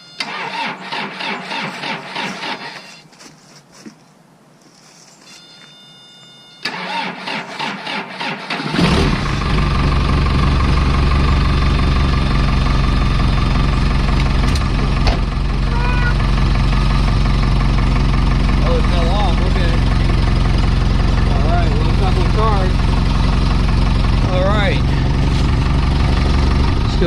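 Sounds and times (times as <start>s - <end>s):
starter motor cranking: 0.2s - 2.9s, 6.6s - 9.6s
diesel engine idling: 6.7s - 27.0s.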